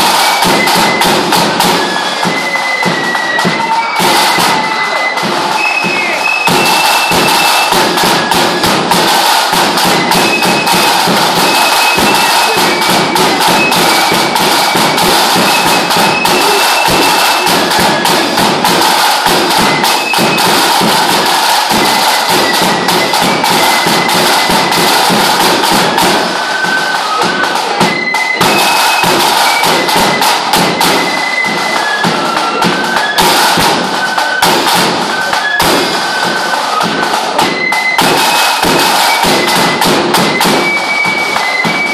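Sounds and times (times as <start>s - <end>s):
fife melody: 0.0s - 41.9s
rapid drum roll: 0.0s - 41.9s.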